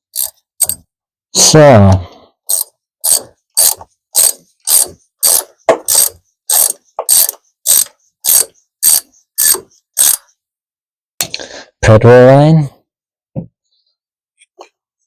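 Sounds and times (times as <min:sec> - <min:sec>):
ratchet wrench clicking: 0:00.1 - 0:00.8, 0:02.5 - 0:10.3.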